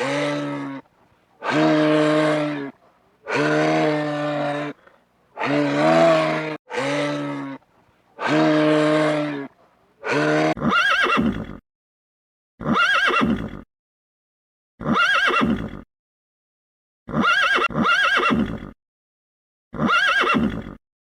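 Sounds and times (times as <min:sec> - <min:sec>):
cow mooing: 0:00.0 - 0:04.8, 0:05.4 - 0:07.6, 0:08.2 - 0:10.7
horse neighing: 0:00.0 - 0:07.6, 0:08.2 - 0:11.6, 0:12.6 - 0:13.6, 0:19.8 - 0:20.8.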